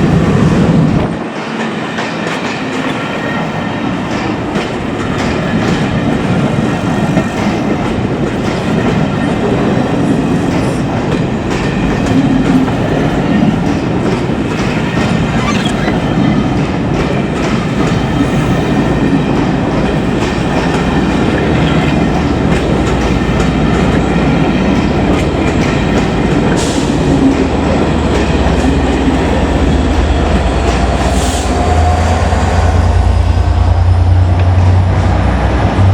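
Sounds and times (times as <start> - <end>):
train wheels clattering over rail joints: 0.0 - 33.5
faint wheel squeal: 15.4 - 16.1.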